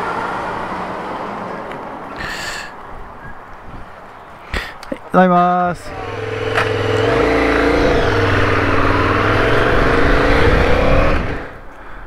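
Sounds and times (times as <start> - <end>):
motorcycle engine accelerating: 5.8 - 11.6
wind rushing over helmet: 5.9 - 11.7.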